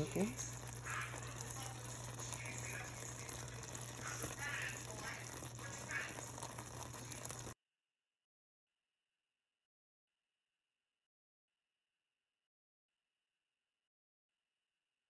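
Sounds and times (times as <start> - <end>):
food sizzling in a wok: 0.0 - 7.6.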